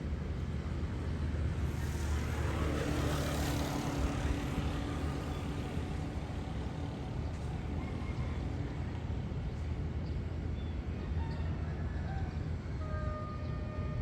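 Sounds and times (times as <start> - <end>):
engine hum: 0.0 - 10.4.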